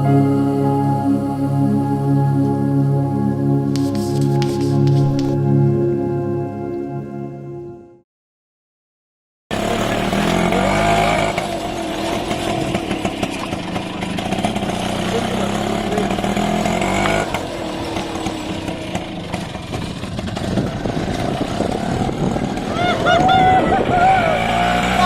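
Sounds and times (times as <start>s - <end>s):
auto-rickshaw engine running: 9.5s - 25.0s.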